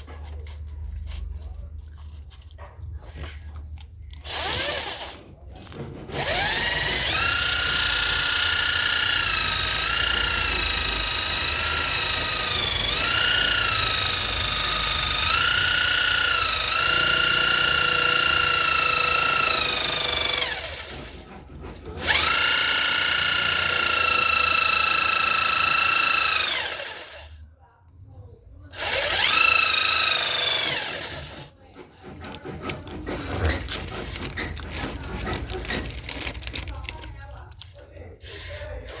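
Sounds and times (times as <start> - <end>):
power tool motor whine: 22.0 - 27.3, 28.8 - 31.3
light clicking and handling: 31.7 - 39.0.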